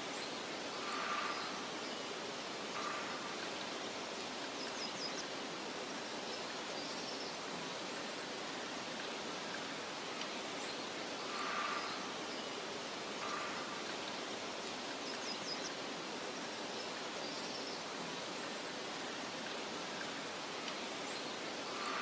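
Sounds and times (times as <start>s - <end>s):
wind through grass: 0.0s - 22.0s
faint bird chirps: 10.6s - 18.6s.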